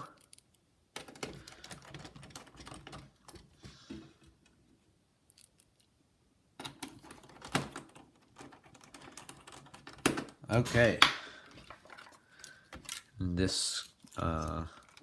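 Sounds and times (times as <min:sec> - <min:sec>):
laptop parts clicking: 0:00.0 - 0:03.6, 0:06.6 - 0:10.4, 0:13.8 - 0:15.0.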